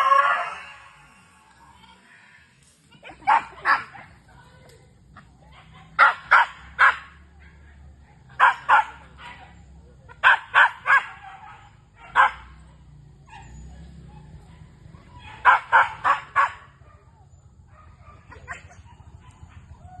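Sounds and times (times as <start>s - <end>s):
dog barking: 3.2s - 4.1s, 5.5s - 9.6s, 10.2s - 19.8s.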